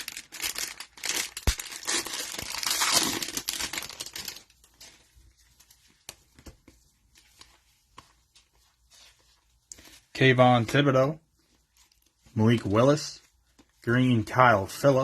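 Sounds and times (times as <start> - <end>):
cellophane tearing and crinkling: 0.0 - 4.6.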